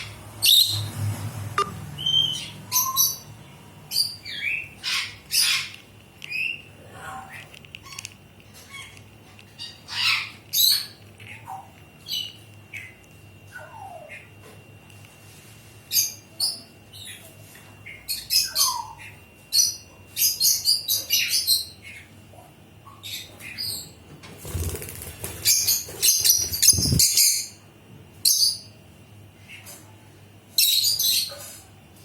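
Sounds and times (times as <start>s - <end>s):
parrots chirping: 0.0s - 1.0s, 1.6s - 14.4s, 25.4s - 27.6s.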